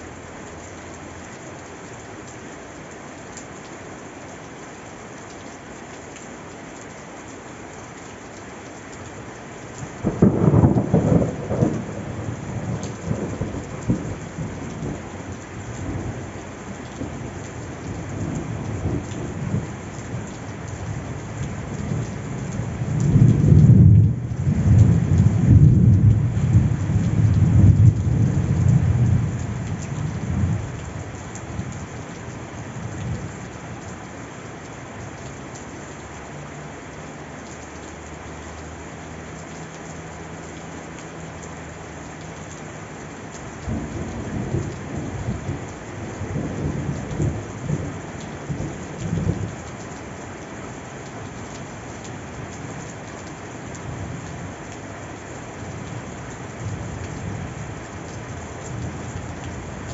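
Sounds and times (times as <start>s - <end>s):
steady rain: 0.0s - 59.9s
thunder rumbling: 10.0s - 16.1s, 21.8s - 30.7s.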